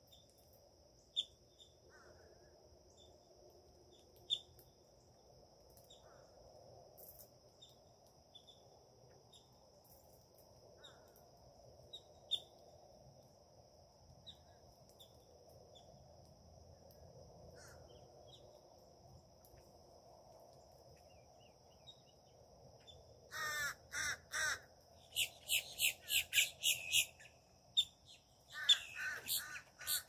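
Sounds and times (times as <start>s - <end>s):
low background hum: 0.1s - 30.0s
birds chirping: 22.8s - 30.0s
distant crow cawing: 23.3s - 24.7s, 28.5s - 30.0s.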